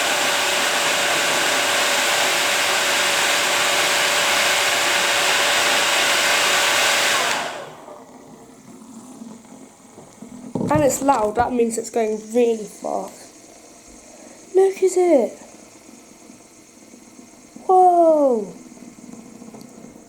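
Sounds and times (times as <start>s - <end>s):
hairdryer blowing: 0.0s - 8.1s.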